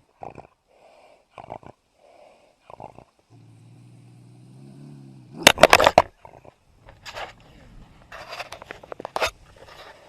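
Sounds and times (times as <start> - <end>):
wild animal vocalization: 0.0 - 9.0.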